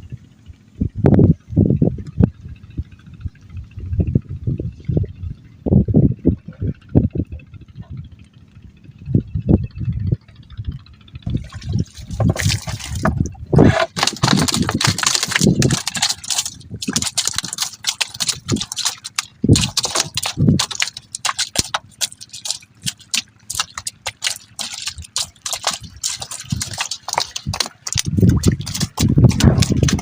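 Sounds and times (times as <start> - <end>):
water drips and trickles: 11.2 - 30.0
water splashing and sloshing: 11.2 - 30.0.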